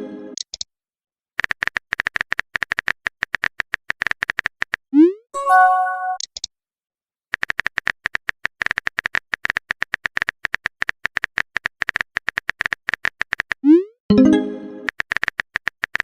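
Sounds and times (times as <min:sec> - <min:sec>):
keyboard typing clicks: 0:07.3 - 0:16.0.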